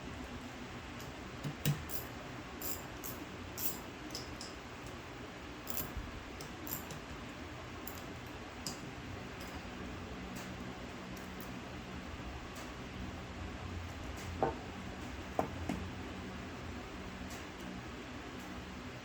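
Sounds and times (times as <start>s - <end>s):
low steady hum: 0.0s - 19.0s
metal tools clinking: 1.9s - 4.6s, 5.7s - 6.0s, 6.6s - 7.0s.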